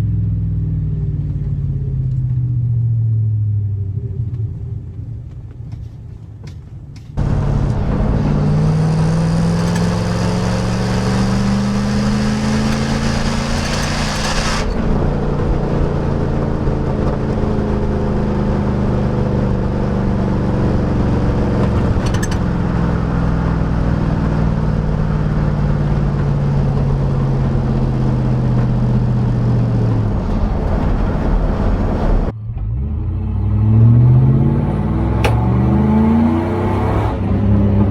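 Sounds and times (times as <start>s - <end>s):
pickup truck engine accelerating: 7.2s - 37.9s.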